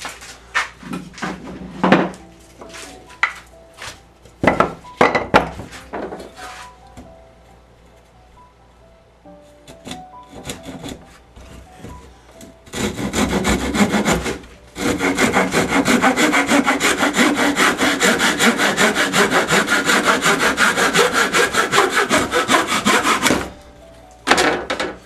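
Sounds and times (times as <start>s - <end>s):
hand saw cutting wood: 9.6s - 11.6s, 12.6s - 23.5s.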